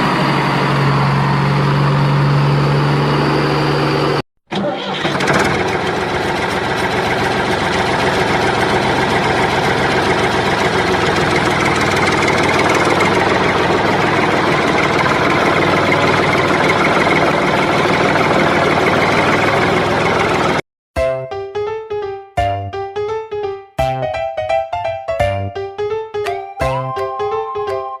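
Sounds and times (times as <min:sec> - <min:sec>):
engine idling: 0:00.0 - 0:20.6.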